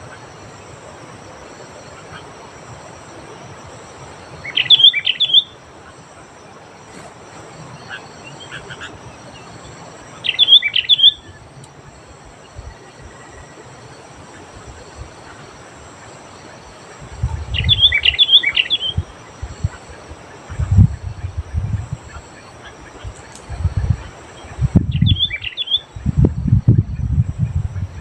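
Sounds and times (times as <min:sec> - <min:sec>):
steady background hiss: 0:00.0 - 0:28.0
bulbul singing whistled phrases: 0:04.4 - 0:05.6, 0:10.2 - 0:11.4, 0:17.2 - 0:19.8, 0:24.4 - 0:26.0.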